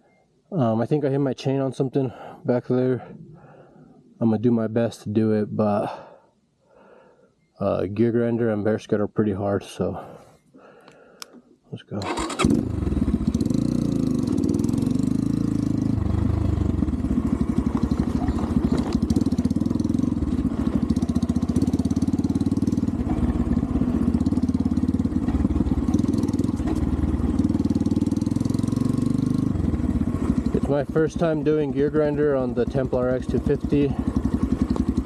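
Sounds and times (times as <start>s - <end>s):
dirt bike engine revving: 12.1s - 35.0s.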